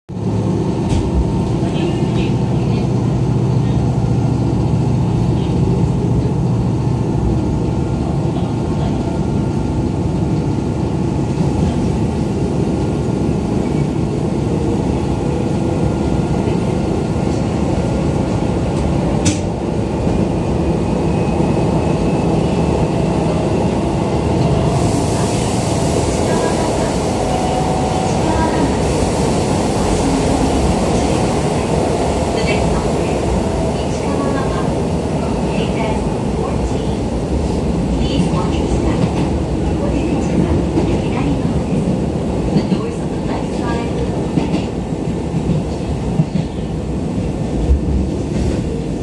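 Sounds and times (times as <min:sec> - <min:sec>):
train wheels rumbling: 0:00.2 - 0:49.0.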